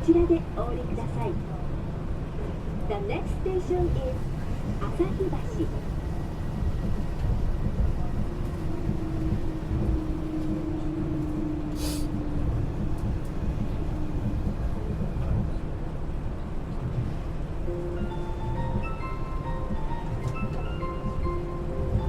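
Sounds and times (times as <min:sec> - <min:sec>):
monorail low rumble: 0:00.0 - 0:22.0
brief hiss: 0:11.8 - 0:12.2.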